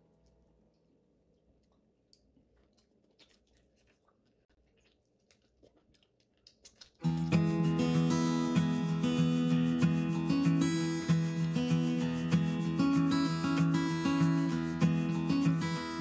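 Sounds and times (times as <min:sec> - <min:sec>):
chewing crunches and clicks: 0:00.1 - 0:07.4
guitar music: 0:07.0 - 0:16.0.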